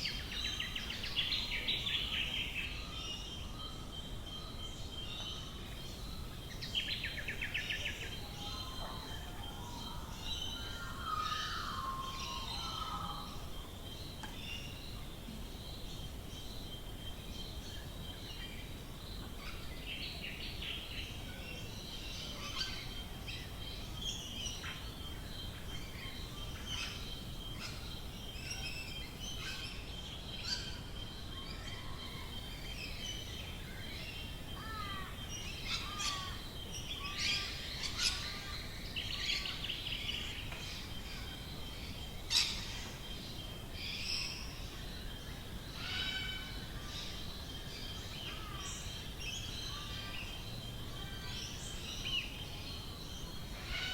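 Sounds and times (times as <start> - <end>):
soft background hiss: 0.0 - 53.9
birds chirping and calling: 5.9 - 14.4, 31.7 - 44.7.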